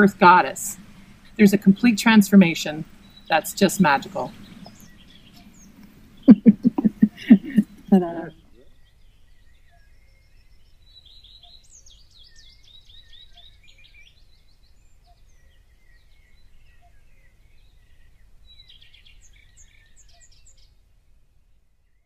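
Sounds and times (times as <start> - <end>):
low outdoor rumble: 0.0 - 8.6
birds singing: 0.0 - 20.8.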